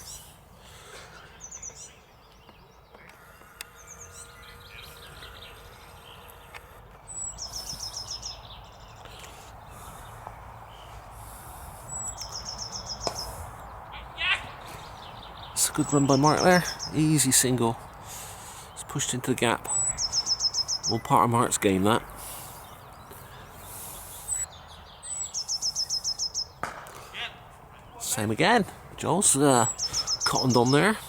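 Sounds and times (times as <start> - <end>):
background noise: 0.0 - 31.0
small bird trilling: 11.9 - 17.0, 19.7 - 21.1.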